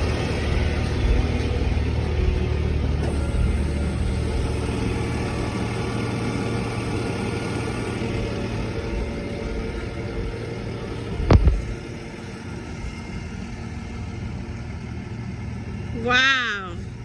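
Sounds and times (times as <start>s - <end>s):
faint steady whine: 0.0s - 17.0s
truck engine running: 0.0s - 17.0s.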